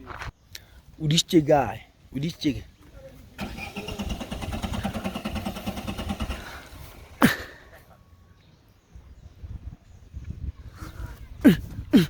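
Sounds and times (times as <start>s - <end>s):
car engine cranking on starter: 3.4s - 7.2s.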